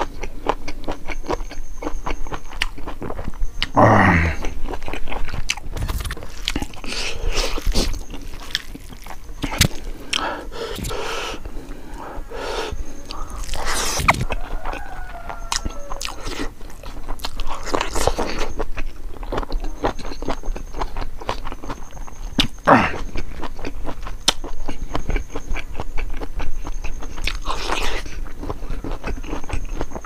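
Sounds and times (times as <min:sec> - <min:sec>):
wet chewing and lip-smacking: 0:00.0 - 0:03.8, 0:04.4 - 0:30.0
mouth clicks: 0:05.4 - 0:18.9.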